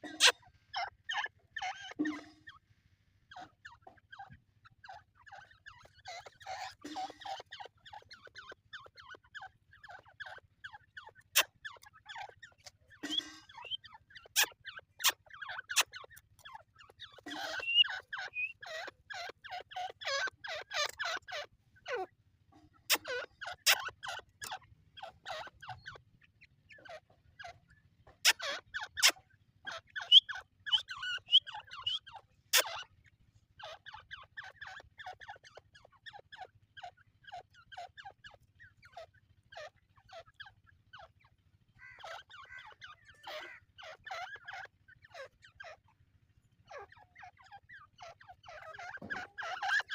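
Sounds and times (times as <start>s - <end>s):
francolins calling: 3.3s - 22.1s, 28.2s - 32.9s, 41.8s - 45.9s, 46.6s - 49.9s.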